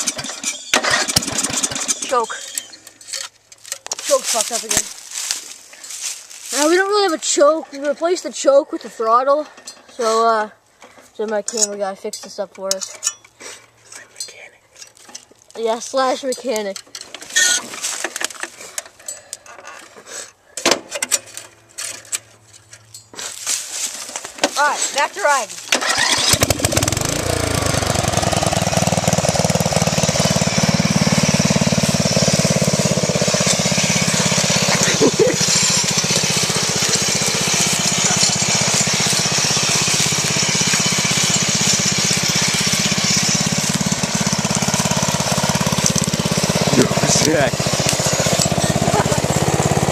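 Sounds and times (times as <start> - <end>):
riding lawn mower engine running: 0.0 - 11.1, 15.0 - 20.0, 20.8 - 49.9
clicking and rattling handling noises: 1.9 - 6.2, 10.8 - 15.6, 16.2 - 26.3.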